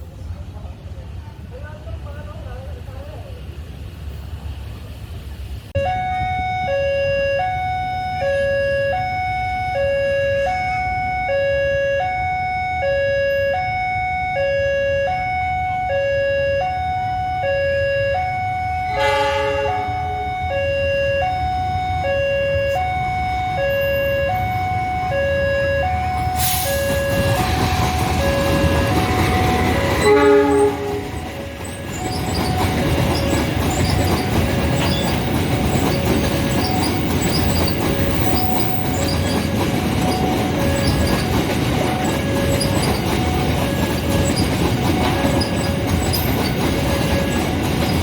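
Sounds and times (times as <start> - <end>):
level crossing two-tone alarm: 5.8 - 48.0
short horn: 18.9 - 20.1, 30.0 - 31.2.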